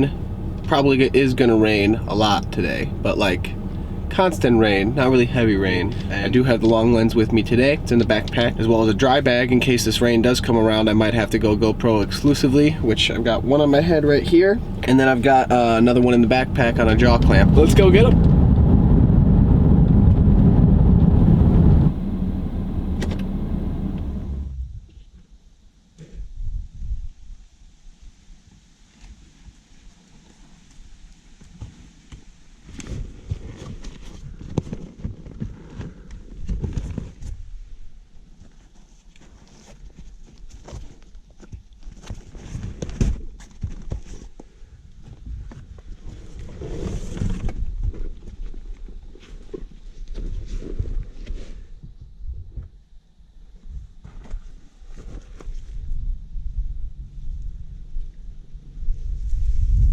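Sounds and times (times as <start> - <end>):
vehicle rumble from inside: 0.0 - 25.0, 55.0 - 59.9.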